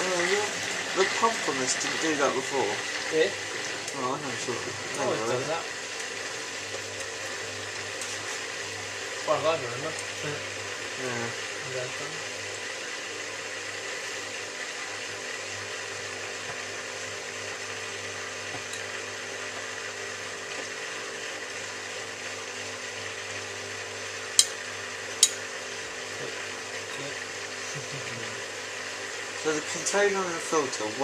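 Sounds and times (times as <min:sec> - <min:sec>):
washing machine drain pump humming: 0:00.0 - 0:31.0.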